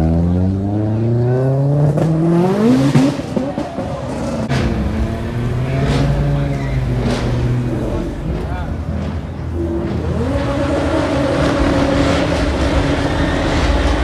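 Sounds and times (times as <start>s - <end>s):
car engine revving: 0.0s - 14.0s
sharp engine cracks: 4.4s - 14.0s.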